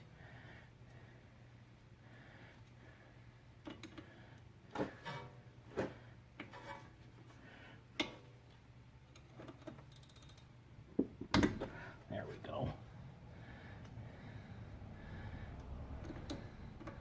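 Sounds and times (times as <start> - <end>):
steady low hum: 10.3 - 17.0.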